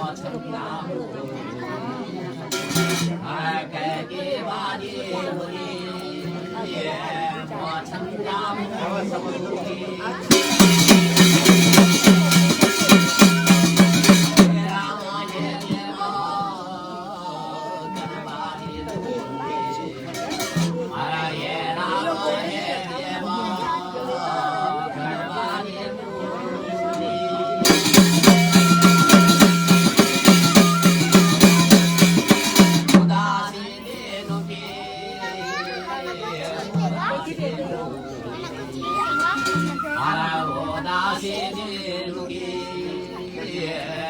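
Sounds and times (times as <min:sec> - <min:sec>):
soft music with singing: 0:00.0 - 0:44.0
fast drumbeat: 0:02.5 - 0:03.2, 0:10.3 - 0:15.8, 0:20.2 - 0:20.9, 0:27.6 - 0:33.6
sharp percussion hits: 0:02.5 - 0:03.4, 0:10.3 - 0:15.8, 0:20.2 - 0:20.9, 0:27.6 - 0:33.6, 0:38.9 - 0:40.0
folk drum beaten quickly: 0:02.5 - 0:03.7, 0:10.2 - 0:16.7, 0:17.6 - 0:22.9, 0:26.7 - 0:41.3
held higher note: 0:10.3 - 0:15.6, 0:19.2 - 0:20.9, 0:26.6 - 0:33.4, 0:38.8 - 0:40.8.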